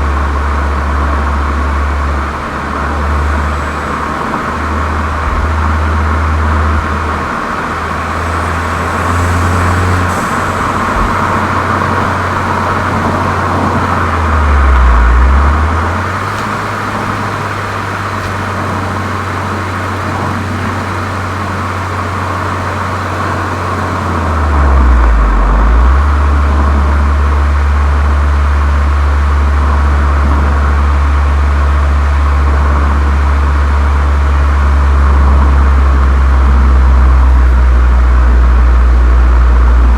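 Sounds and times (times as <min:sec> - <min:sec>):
deep exhaust drone: 0:00.0 - 0:39.9.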